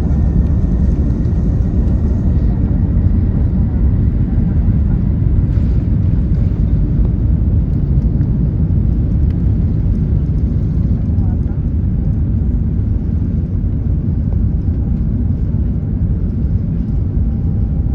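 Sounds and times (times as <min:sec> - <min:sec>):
jet engines rumbling: 0:00.0 - 0:17.9.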